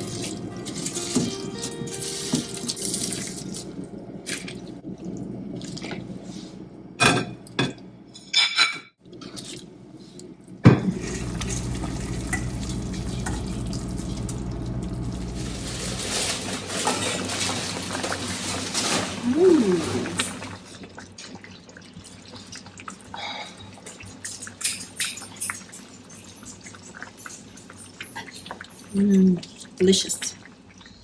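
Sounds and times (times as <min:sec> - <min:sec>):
water running from a tap: 0:00.0 - 0:03.8, 0:10.8 - 0:16.0, 0:23.6 - 0:31.0.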